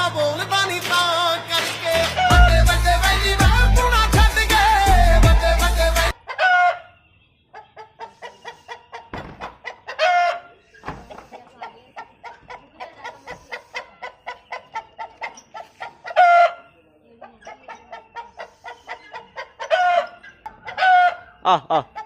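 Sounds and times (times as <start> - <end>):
music: 0.0 - 6.2
chickens clucking: 6.0 - 22.0.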